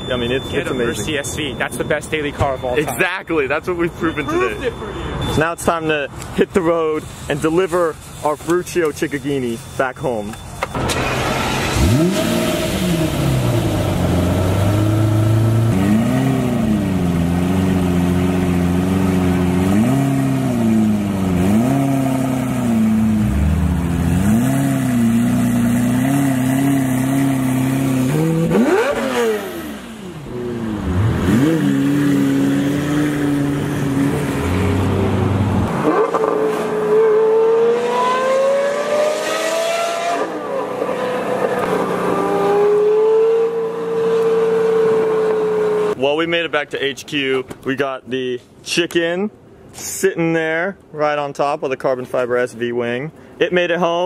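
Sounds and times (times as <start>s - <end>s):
car accelerating along road: 10.7s - 46.0s
car engine revving: 10.7s - 46.0s.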